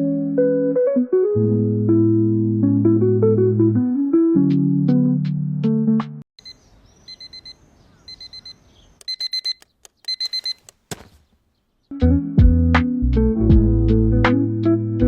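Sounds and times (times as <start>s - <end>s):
music: 0.0s - 6.2s, 11.9s - 15.0s
digital alarm clock beeping: 6.4s - 10.7s.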